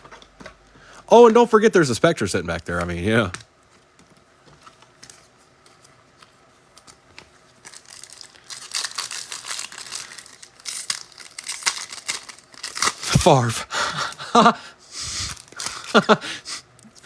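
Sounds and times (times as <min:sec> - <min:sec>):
card pack wrapper tearing: 0:06.7 - 0:14.2, 0:15.1 - 0:16.2.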